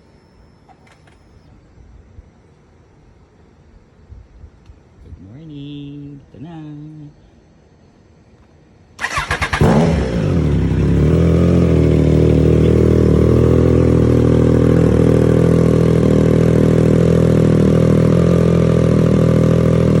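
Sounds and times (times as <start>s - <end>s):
engine starting and idling: 9.0s - 20.0s.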